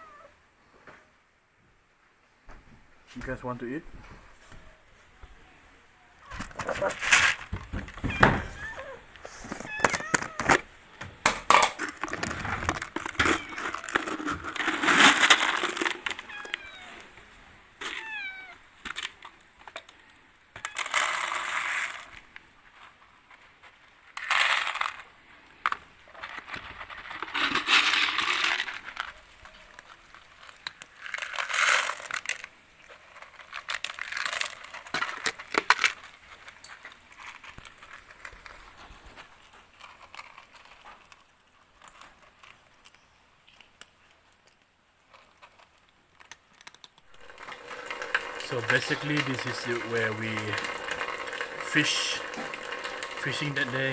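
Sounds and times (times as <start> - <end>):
cat chirping: 0.0 - 0.4, 8.0 - 10.5, 16.2 - 17.1, 17.9 - 18.6
cat meowing: 0.0 - 0.4, 8.0 - 10.6, 13.2 - 14.0, 16.2 - 17.2, 17.8 - 18.6.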